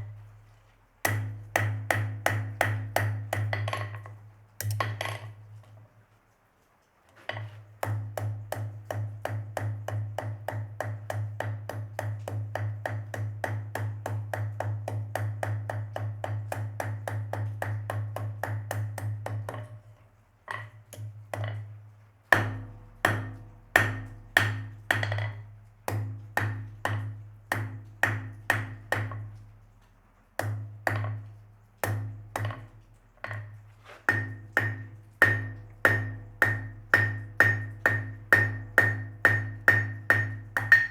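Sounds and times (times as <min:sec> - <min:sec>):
hammer striking steel on anvil: 0:22.4 - 0:29.2, 0:34.1 - 0:40.9.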